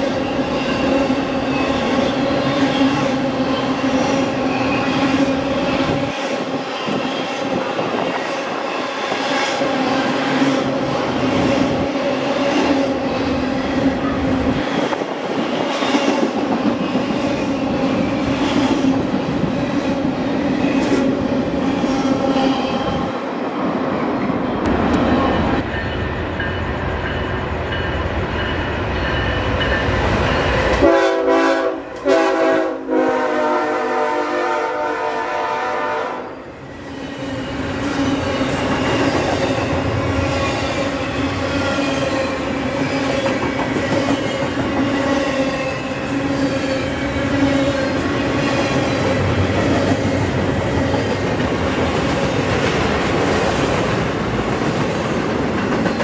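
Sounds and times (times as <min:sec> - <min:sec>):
train wheels rumbling and clattering: 0:00.0 - 0:31.3, 0:36.6 - 0:56.0
train horn blasts: 0:30.8 - 0:36.4.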